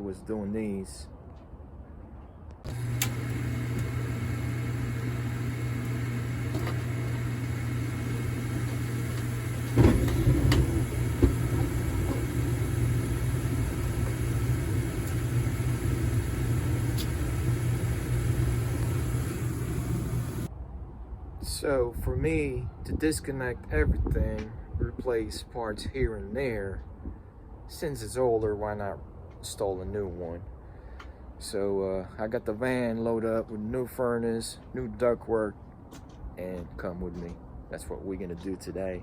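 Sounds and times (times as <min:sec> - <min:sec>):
furnace humming: 0:02.7 - 0:20.5
loud furnace thump: 0:06.4 - 0:14.4.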